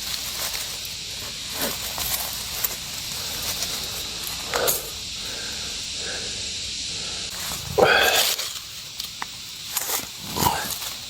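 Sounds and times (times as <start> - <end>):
insect chorus: 0.0 - 11.0
twigs crackling underfoot: 0.0 - 11.0.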